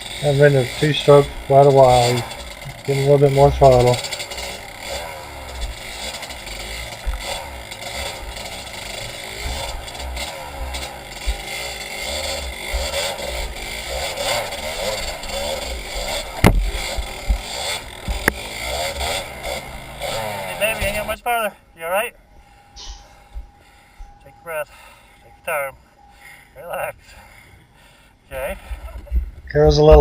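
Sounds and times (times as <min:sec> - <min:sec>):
motorbike engine running: 0:00.0 - 0:25.5
sharp knocks: 0:15.4 - 0:19.2.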